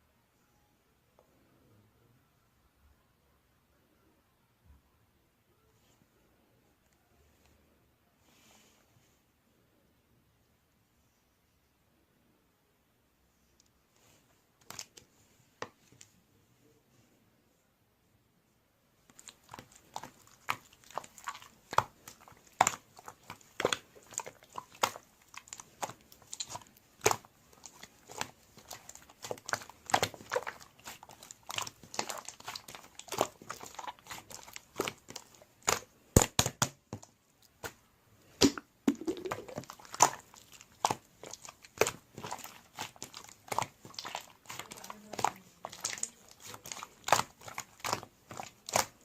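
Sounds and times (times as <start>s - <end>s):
slime squished by hand: 19.1s - 49.0s.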